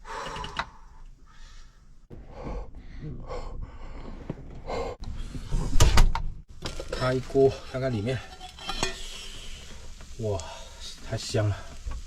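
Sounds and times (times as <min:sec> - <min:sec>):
man breathing out heavily: 0:00.0 - 0:05.8.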